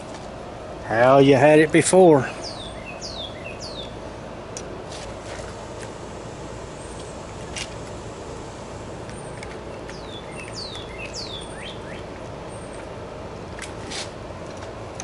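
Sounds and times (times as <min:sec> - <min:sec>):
steady background hiss: 0:00.0 - 0:14.9
birds chirping: 0:00.9 - 0:04.2, 0:08.2 - 0:13.0.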